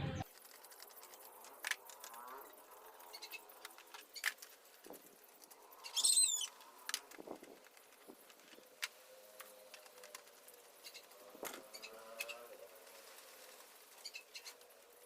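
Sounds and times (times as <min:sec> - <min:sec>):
high chirp with falling sweeps: 0:05.8 - 0:06.6.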